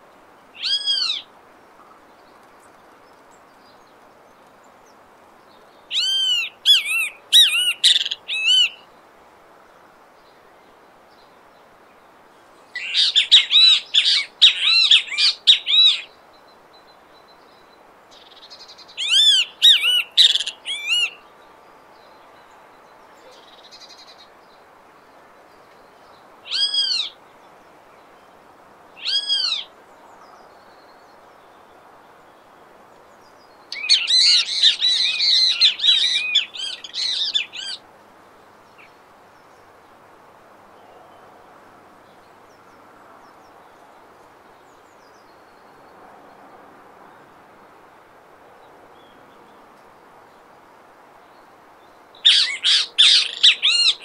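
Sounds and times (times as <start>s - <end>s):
faint background hiss: 0.0s - 54.0s
bird calling sharp notes: 5.9s - 8.8s, 19.0s - 21.2s, 52.3s - 54.0s.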